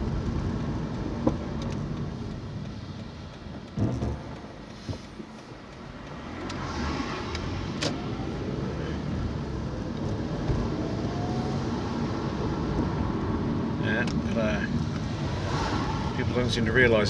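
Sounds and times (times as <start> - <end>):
car engine and road noise: 0.0 - 17.0
faint rising whines: 15.0 - 17.0.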